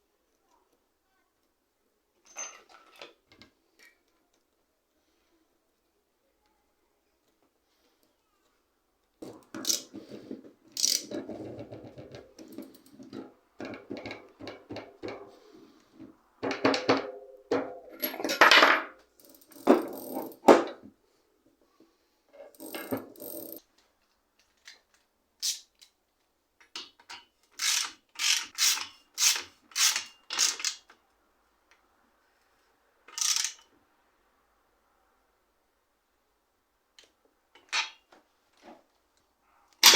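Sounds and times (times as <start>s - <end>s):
metallic tool clicks and rattles: 9.6s - 9.9s, 10.8s - 11.1s, 19.2s - 20.4s, 22.5s - 23.6s, 27.1s - 30.8s
evenly spaced tool strokes: 28.2s - 30.2s.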